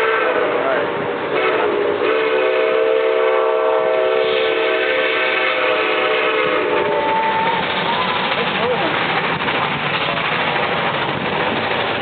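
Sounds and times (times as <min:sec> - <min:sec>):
steam locomotive whistle blast: 0:00.0 - 0:08.2
passing train noise: 0:00.0 - 0:12.0.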